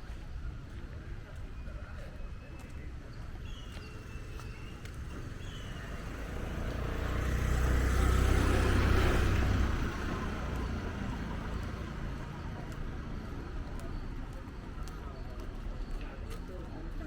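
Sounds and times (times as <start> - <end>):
car passing by: 5.3 - 12.3.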